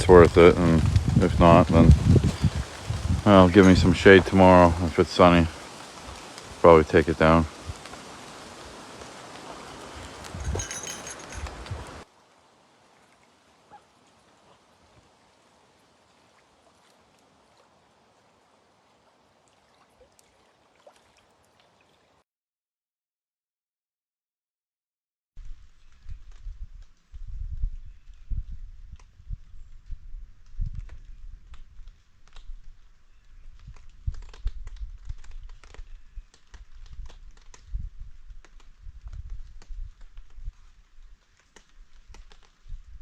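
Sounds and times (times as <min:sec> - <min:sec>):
soft low bumps: 0:00.0 - 0:05.3
raindrops tapping on a tarp: 0:00.0 - 0:12.0, 0:30.4 - 0:43.0
faint outdoor hiss: 0:00.0 - 0:22.2.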